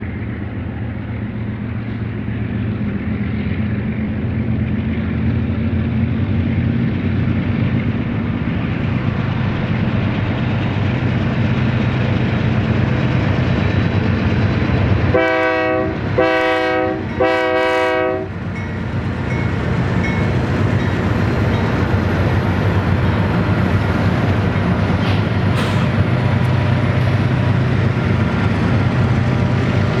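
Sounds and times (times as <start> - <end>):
diesel locomotives droning: 0.0 - 30.0
locomotive horn blasts: 15.1 - 18.4.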